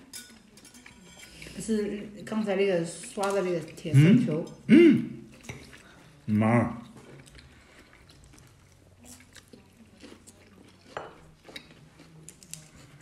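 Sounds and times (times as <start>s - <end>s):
cutlery clinking on plates: 0.0s - 1.6s, 5.4s - 5.8s, 10.9s - 11.7s.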